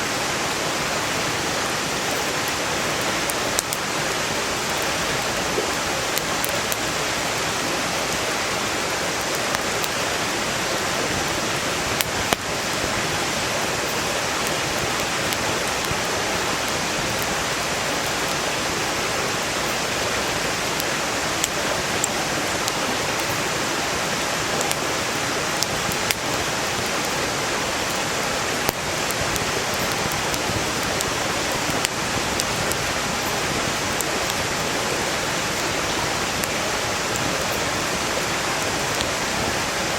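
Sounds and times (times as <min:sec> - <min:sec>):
stream rushing: 0:00.0 - 0:39.9
firewood popping and crackling: 0:02.0 - 0:08.3, 0:09.2 - 0:10.0, 0:13.8 - 0:18.8, 0:19.6 - 0:23.4, 0:24.6 - 0:24.8, 0:25.5 - 0:27.2, 0:27.9 - 0:35.8.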